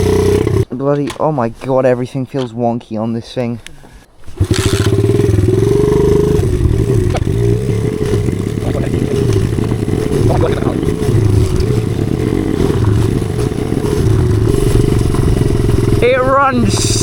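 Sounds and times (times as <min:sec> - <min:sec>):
small motorbike engine running: 0:00.0 - 0:00.6, 0:04.2 - 0:17.0.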